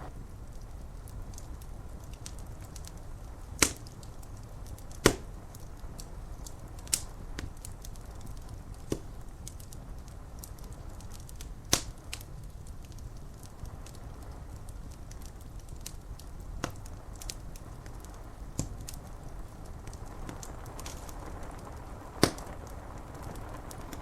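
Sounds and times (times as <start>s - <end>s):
steady low rumble: 0.0s - 11.6s
wood fire crackling and popping: 0.0s - 24.0s
rain ticking on window glass: 0.2s - 24.0s.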